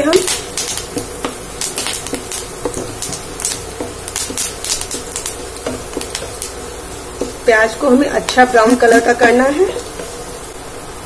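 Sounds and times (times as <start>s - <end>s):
onions sizzling in a frying pan: 0.0s - 11.0s
wooden spatula scraping a pan: 2.0s - 10.4s.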